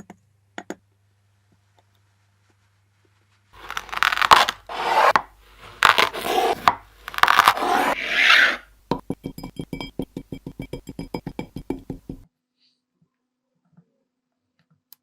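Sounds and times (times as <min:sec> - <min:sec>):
sand being cut and squished: 0:03.6 - 0:08.7.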